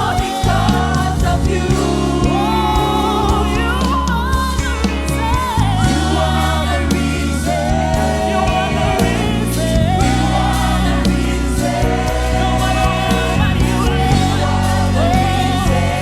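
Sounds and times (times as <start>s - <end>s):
band with bass and drums: 0.0s - 16.0s
choir singing: 0.0s - 16.0s.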